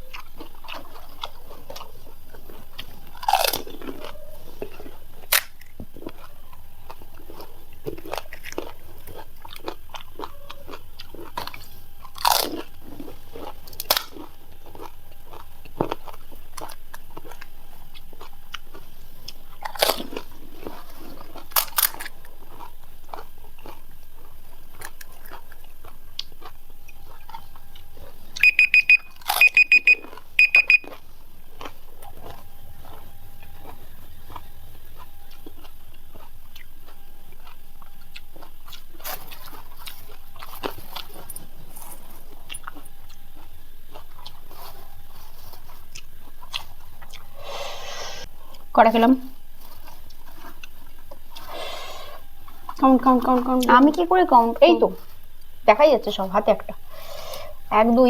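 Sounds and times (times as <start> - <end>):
chewing: 0.0 - 58.0
crisp food crunching: 0.0 - 58.0
short high electronic beeps: 28.4 - 30.9.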